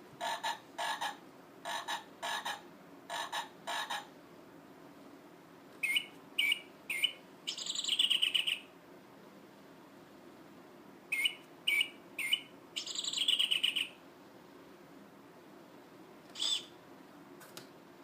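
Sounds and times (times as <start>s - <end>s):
recorded bird calls from speaker: 5.8s - 8.7s, 11.1s - 14.0s, 16.3s - 16.8s.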